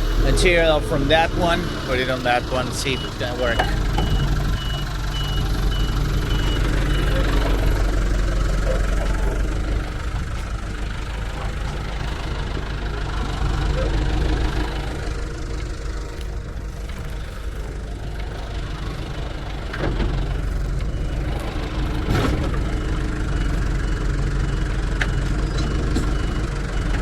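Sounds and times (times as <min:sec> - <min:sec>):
high-pitched beeping: 0:00.0 - 0:19.7
diesel engine running: 0:00.0 - 0:27.0.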